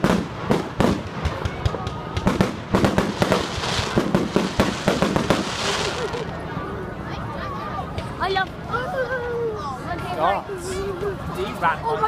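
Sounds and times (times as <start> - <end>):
fireworks banging and crackling: 0.0 - 6.7.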